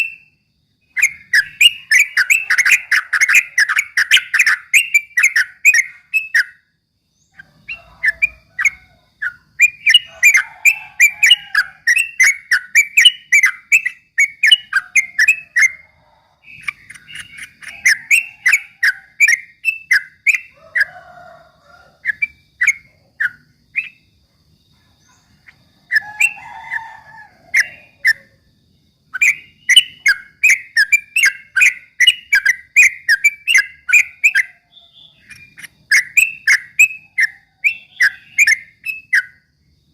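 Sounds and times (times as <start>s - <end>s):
bulbul singing rapid chattering notes: 0.9s - 6.6s, 7.4s - 15.8s, 16.4s - 20.6s, 29.2s - 39.4s.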